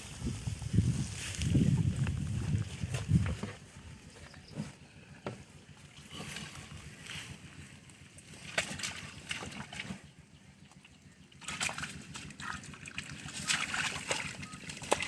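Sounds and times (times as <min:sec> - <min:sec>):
hands splashing in muddy water: 0:08.3 - 0:10.1, 0:11.3 - 0:15.0.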